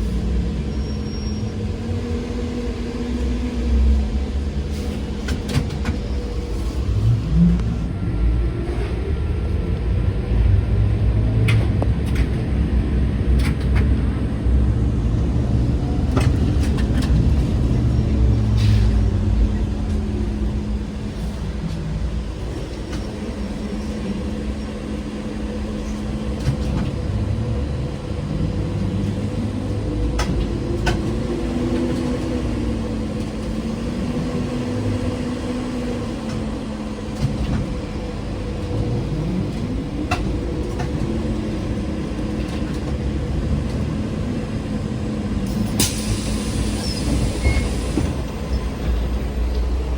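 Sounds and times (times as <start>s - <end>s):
trolleybus drive whine: 0.0s - 49.9s.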